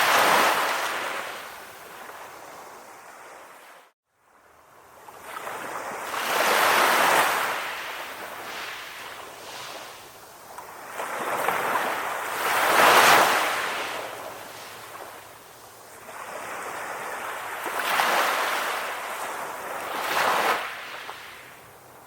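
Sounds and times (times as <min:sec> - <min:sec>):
ocean waves washing in: 0:00.0 - 0:04.0.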